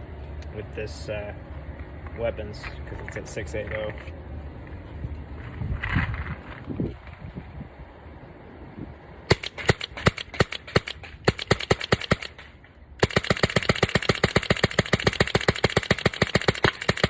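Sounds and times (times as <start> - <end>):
paintball marker firing rapid shots: 9.3 - 17.0.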